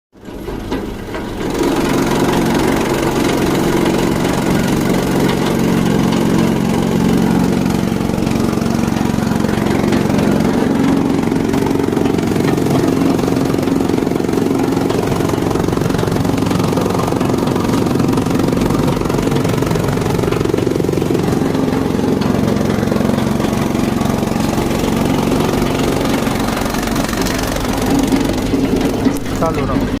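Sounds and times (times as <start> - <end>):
engine running steadily: 0.2 - 30.0.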